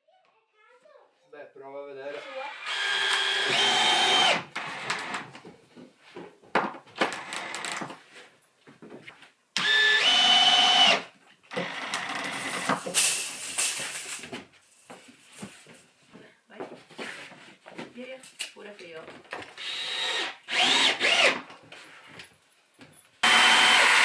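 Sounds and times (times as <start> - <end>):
power drill motor whine: 2.2 - 5.2, 9.6 - 12.6, 19.6 - 21.4, 23.2 - 24.0.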